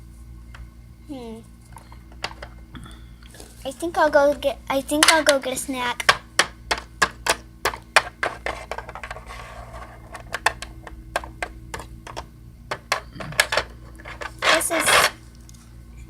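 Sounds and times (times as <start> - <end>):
plastic toys clicking and tapping: 1.8 - 2.5, 5.0 - 5.4, 6.0 - 9.2, 10.1 - 15.1.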